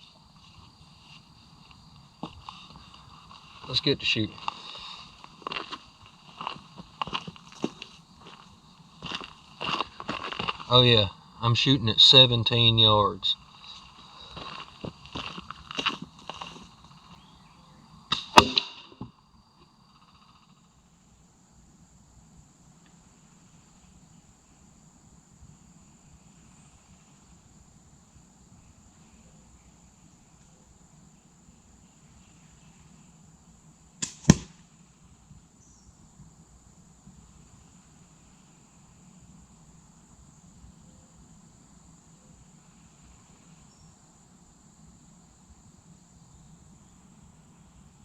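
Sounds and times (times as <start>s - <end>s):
slingshot loud crack: 18.1s - 19.0s, 34.0s - 34.6s.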